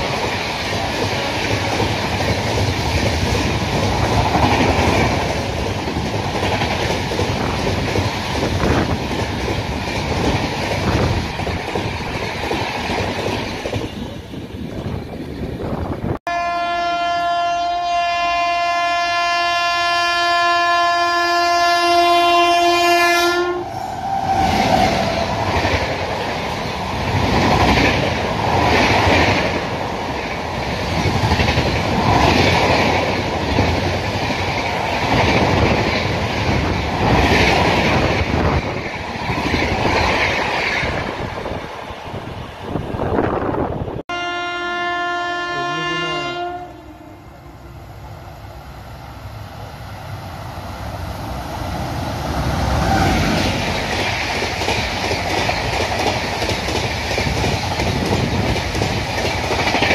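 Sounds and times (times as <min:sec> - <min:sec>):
train passing at speed: 0:00.0 - 0:59.9
locomotive air horn blast: 0:16.3 - 0:24.4, 0:44.1 - 0:47.6.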